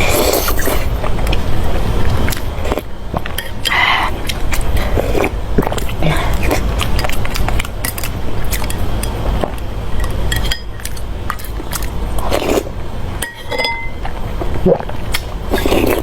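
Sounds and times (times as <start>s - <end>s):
utensils clinking against bowl: 10.0s - 11.9s, 13.2s - 14.1s.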